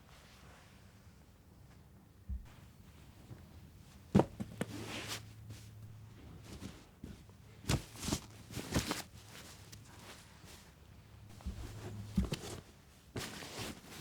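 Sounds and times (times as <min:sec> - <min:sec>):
light knocks and thuds: 0:02.3 - 0:02.8, 0:11.3 - 0:13.3
low steady hum: 0:02.3 - 0:04.6, 0:05.3 - 0:07.6, 0:11.1 - 0:13.1.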